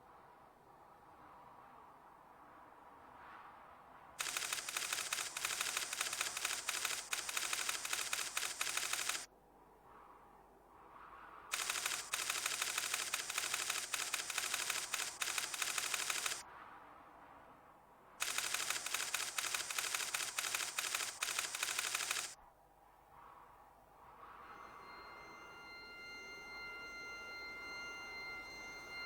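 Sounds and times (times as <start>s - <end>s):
rapid mechanical clatter: 4.2s - 9.3s, 11.5s - 16.4s, 18.2s - 22.4s.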